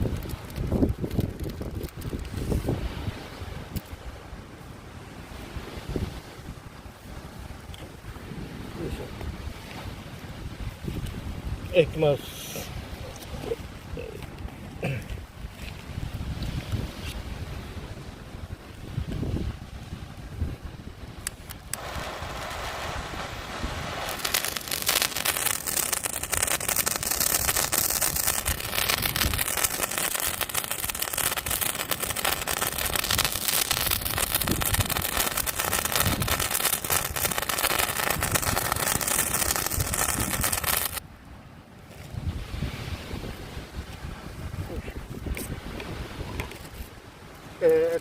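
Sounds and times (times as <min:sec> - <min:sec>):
sparkler hissing and crackling: 0:00.0 - 0:02.5, 0:21.3 - 0:41.0.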